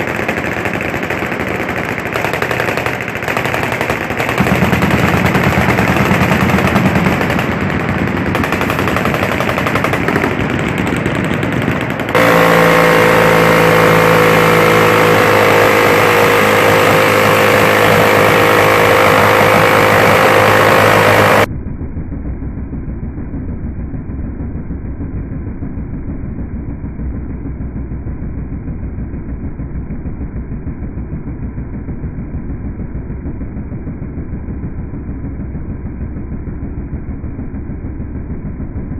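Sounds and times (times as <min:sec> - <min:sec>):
miniguns firing: 0:00.0 - 0:21.5
muffled steady rumble: 0:00.0 - 0:38.9.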